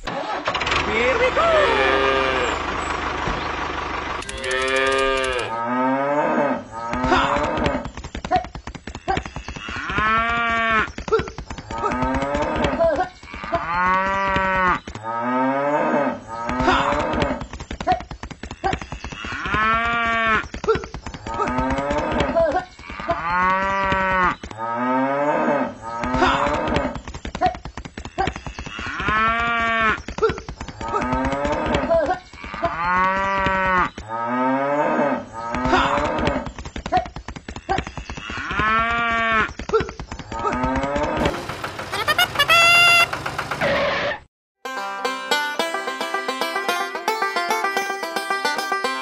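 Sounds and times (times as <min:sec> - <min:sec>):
cattle mooing: 0:00.9 - 0:02.6, 0:04.3 - 0:07.6.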